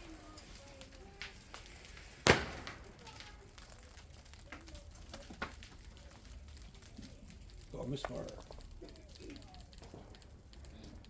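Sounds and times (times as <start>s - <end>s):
faint scattered pops: 0.0s - 11.0s
firework bang: 2.0s - 3.5s.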